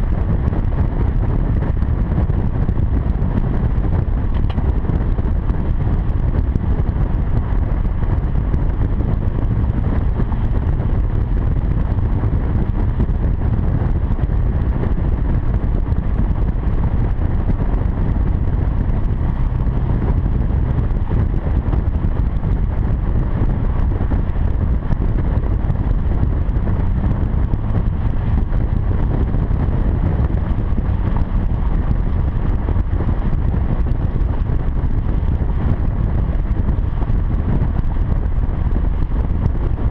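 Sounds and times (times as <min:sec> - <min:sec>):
car exhaust drone: 0:00.0 - 0:39.9
wind rushing over microphone: 0:00.0 - 0:39.9.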